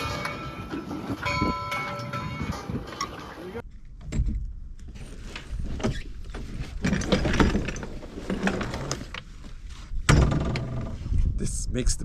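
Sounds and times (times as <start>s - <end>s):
sailboat hardware clicking and rattling: 5.3s - 9.4s, 10.0s - 11.0s.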